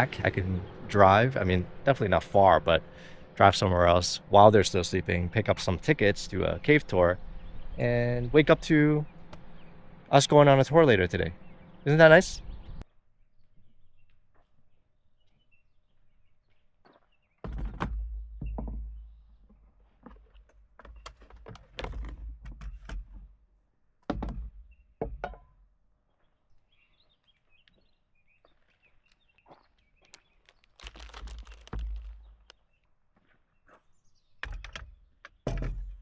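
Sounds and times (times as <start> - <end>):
thunks and knocks: 17.4 - 19.2, 20.8 - 23.3, 24.1 - 25.5, 34.4 - 36.0.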